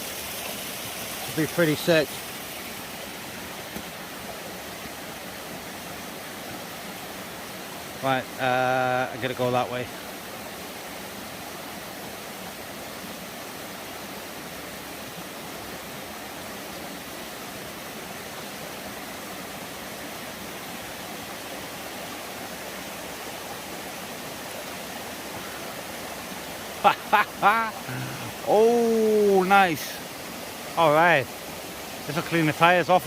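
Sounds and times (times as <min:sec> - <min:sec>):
waterfall and stream rushing: 0:00.0 - 0:33.0.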